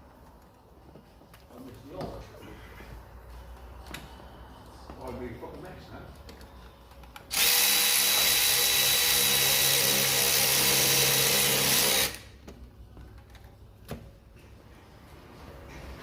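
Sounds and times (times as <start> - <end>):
power tool running: 7.3 - 12.2.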